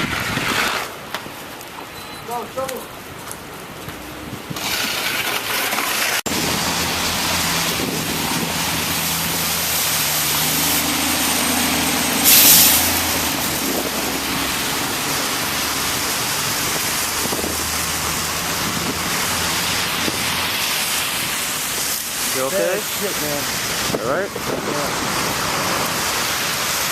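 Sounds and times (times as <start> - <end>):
traffic engines running: 0.0 - 26.9
short loud hiss: 12.1 - 13.1.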